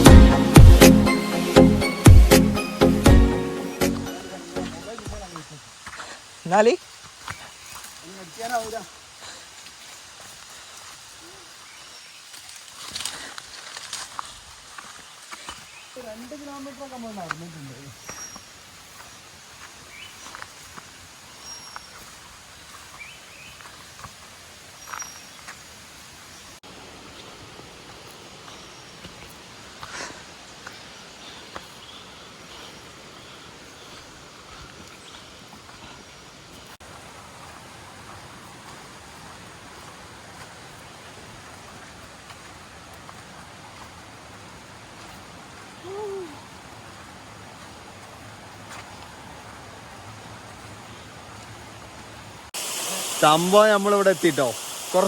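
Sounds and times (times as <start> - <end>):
footsteps on forest trail: 0.0 - 55.0
steady outdoor hiss: 0.0 - 55.0
bird chirps: 17.9 - 18.5, 21.4 - 22.0, 24.8 - 25.4.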